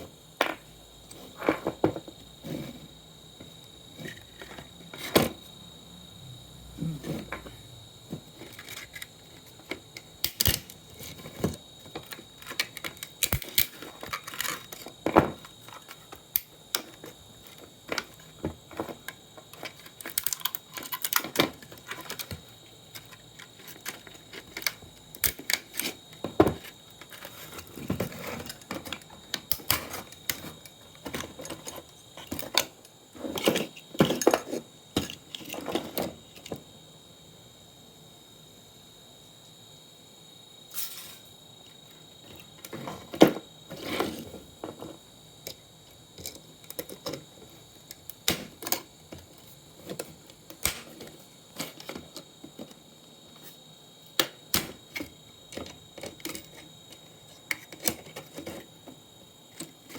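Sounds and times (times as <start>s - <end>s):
plastic and metal parts clattering: 0.4s - 5.4s, 7.0s - 36.6s, 42.2s - 52.8s, 54.2s - 59.9s.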